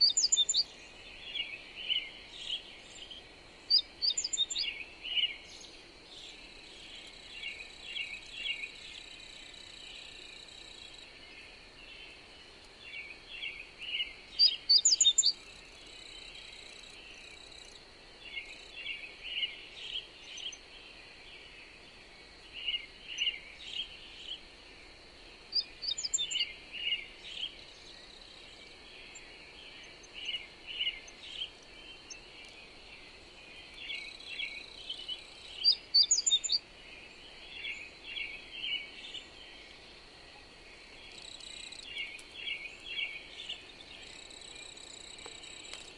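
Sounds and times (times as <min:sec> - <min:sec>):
songbirds chirping: 0:00.0 - 0:45.9
steady high-pitched hiss: 0:00.0 - 0:45.9.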